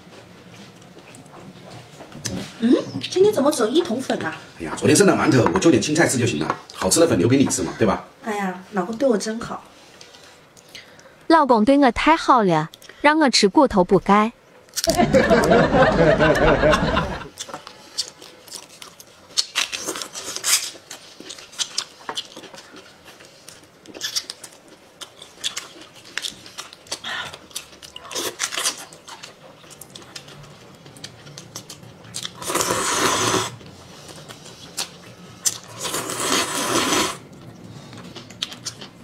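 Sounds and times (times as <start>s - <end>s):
person chewing and crunching: 14.7s - 15.0s, 17.3s - 39.0s.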